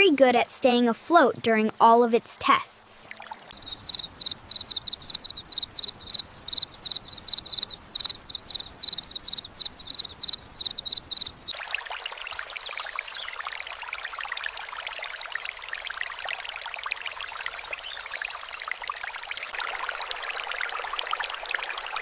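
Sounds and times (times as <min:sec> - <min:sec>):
cricket chirping: 0:03.6 - 0:11.6.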